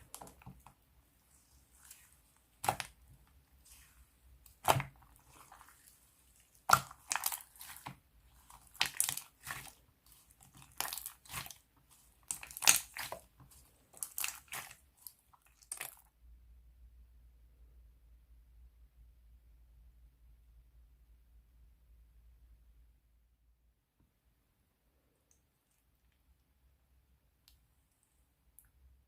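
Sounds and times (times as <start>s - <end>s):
slime crackling and popping: 1.7s - 16.1s.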